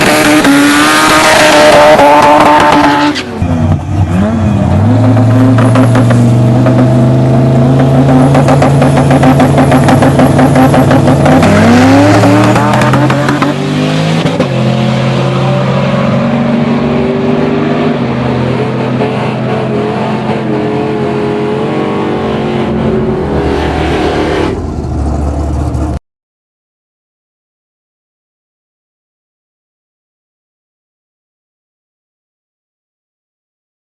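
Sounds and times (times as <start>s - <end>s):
drag truck engine at full throttle: 0.0s - 26.0s.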